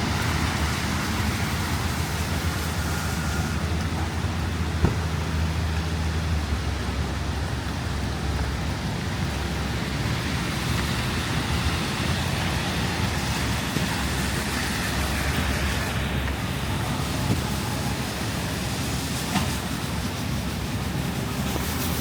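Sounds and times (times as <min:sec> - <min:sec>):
traffic rumble: 0:00.0 - 0:22.0
wind: 0:00.0 - 0:22.0
even hiss: 0:00.1 - 0:05.6.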